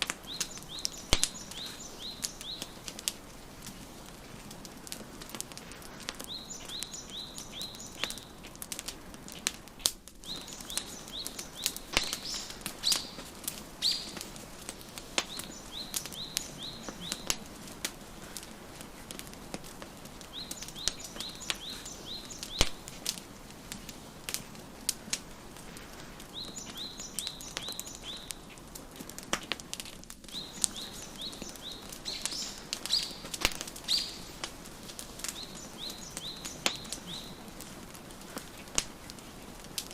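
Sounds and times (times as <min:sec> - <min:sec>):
songbird chirping: 0:00.0 - 0:03.4, 0:06.1 - 0:08.4, 0:10.2 - 0:18.1, 0:19.9 - 0:23.0, 0:26.2 - 0:28.6, 0:30.3 - 0:38.0
wood fire crackling: 0:00.0 - 0:39.9.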